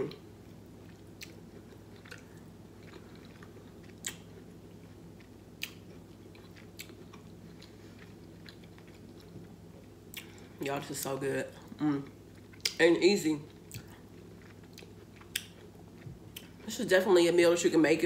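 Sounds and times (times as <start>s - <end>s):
steady low hum: 0.0s - 18.0s
mouth chewing: 0.8s - 10.4s, 13.5s - 16.6s.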